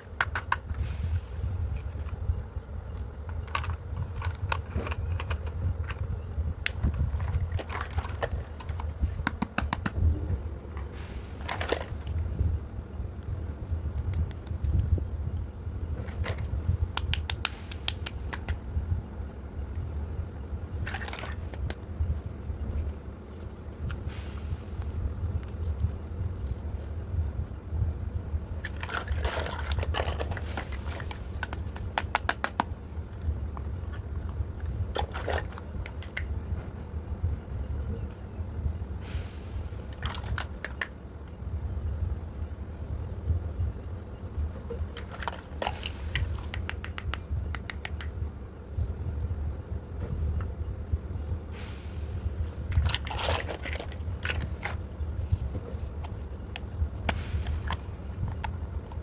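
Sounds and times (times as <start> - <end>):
steady low hum: 0.0 - 59.0
sharp plastic clicks: 2.9 - 10.0, 16.4 - 18.6, 28.6 - 33.7, 40.0 - 41.0, 45.0 - 48.2
plastic toy parts clicking: 3.0 - 6.0, 45.0 - 48.1
toy pieces rustling and scraping: 3.4 - 6.0, 6.7 - 9.0, 20.8 - 21.6, 28.6 - 36.2, 39.9 - 40.9, 44.8 - 47.0, 52.7 - 56.2.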